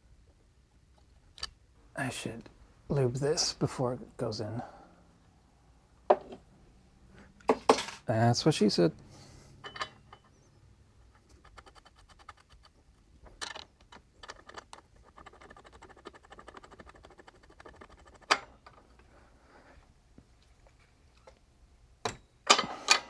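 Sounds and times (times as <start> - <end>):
rapid light mechanical clicking: 11.0 - 19.1.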